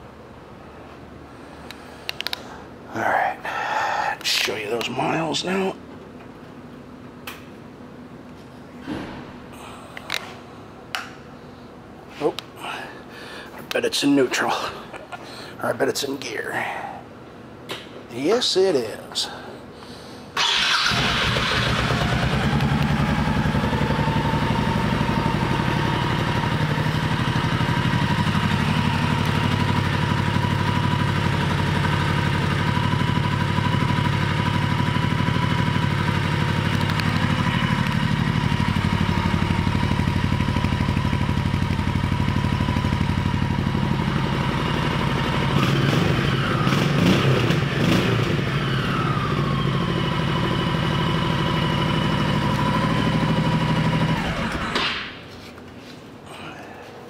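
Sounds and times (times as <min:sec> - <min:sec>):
motorcycle engine idling and revving: 0:20.4 - 0:55.0.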